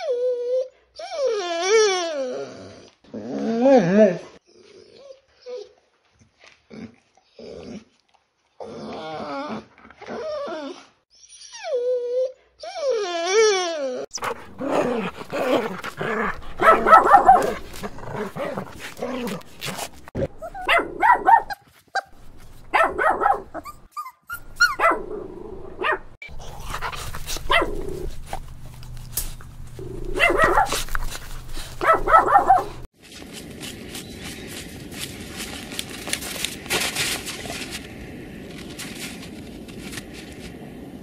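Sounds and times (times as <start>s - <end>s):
dog whining: 0.0s - 5.8s, 8.6s - 21.4s
dogs barking: 14.1s - 21.6s, 22.7s - 23.8s, 24.6s - 25.2s, 25.8s - 28.2s, 29.8s - 32.9s.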